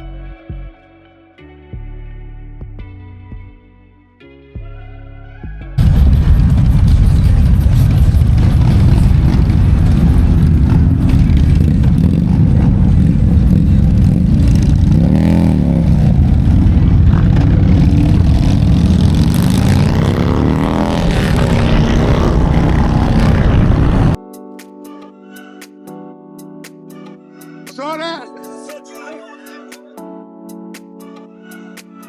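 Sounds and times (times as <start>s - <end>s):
motorcycle engine accelerating: 5.8s - 24.2s
wind and road noise: 5.8s - 24.2s.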